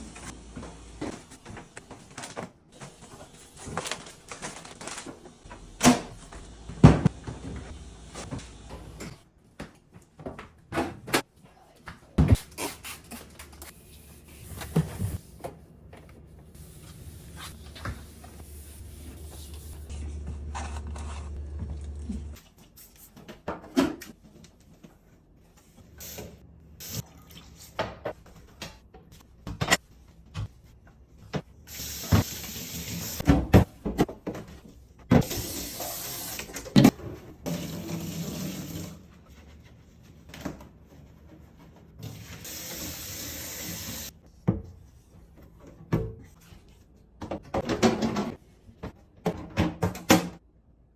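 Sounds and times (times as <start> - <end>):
kitchen tap running: 35.2 - 36.7, 42.1 - 44.1.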